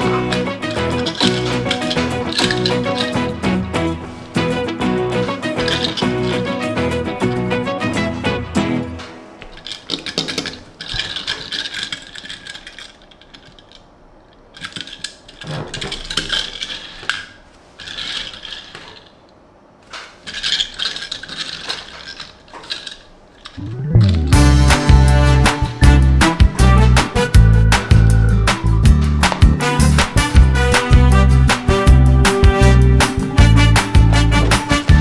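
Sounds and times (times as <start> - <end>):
toy car and packaging handled: 0.0 - 3.4, 5.2 - 6.6, 9.4 - 23.7.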